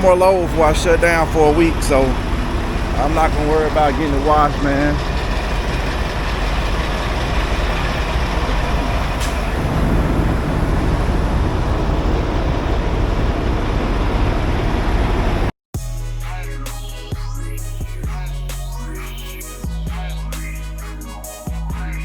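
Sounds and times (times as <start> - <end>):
truck engine and road rumble: 0.0 - 15.5.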